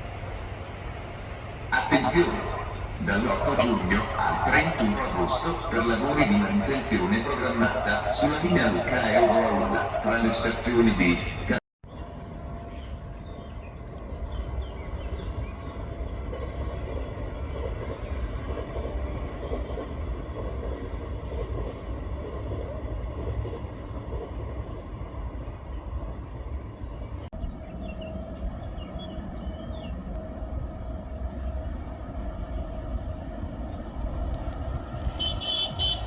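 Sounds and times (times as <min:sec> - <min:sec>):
train wheel clatter: 0:00.0 - 0:11.6
train rumbling past: 0:00.0 - 0:36.0
train whine: 0:00.0 - 0:36.0.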